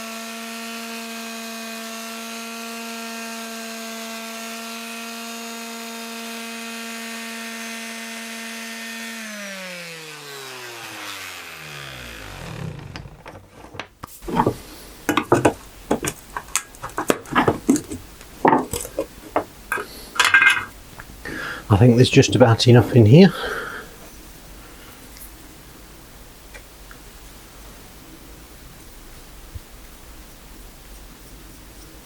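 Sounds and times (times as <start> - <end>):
motor winding down whine: 0.0 - 13.5
electric sander running: 0.0 - 13.6
wooden parts and tools clattering: 12.9 - 20.8.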